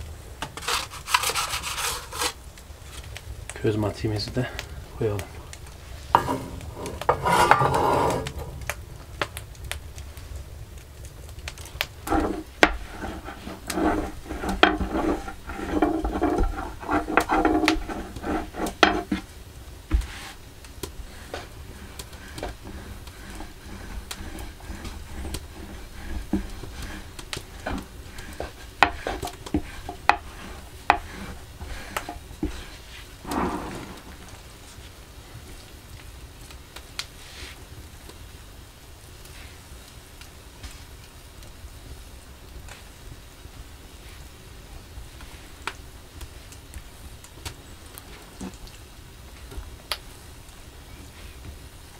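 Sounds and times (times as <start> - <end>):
utensil scraping a pan: 0.5 - 3.0, 5.8 - 8.7, 12.0 - 34.9
food sizzling in a pan: 17.2 - 35.0.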